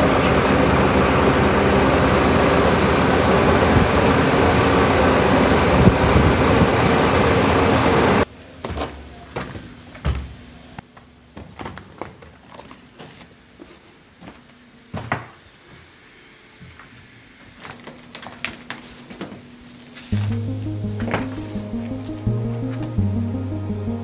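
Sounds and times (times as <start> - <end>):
faint steady hum: 20.1 - 24.0
music: 20.2 - 24.0.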